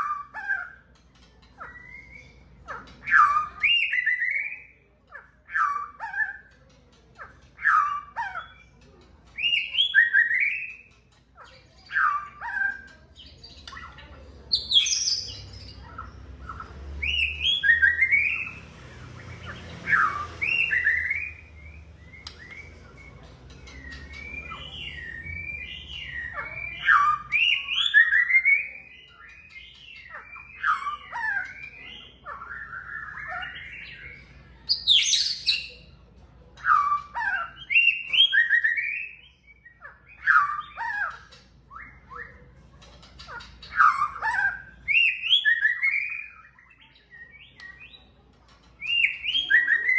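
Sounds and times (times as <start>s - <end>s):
bird singing whistled phrases: 1.6s - 4.8s, 9.4s - 10.9s, 14.5s - 18.6s, 19.3s - 35.8s, 36.6s - 42.5s, 43.7s - 48.0s, 48.8s - 49.9s.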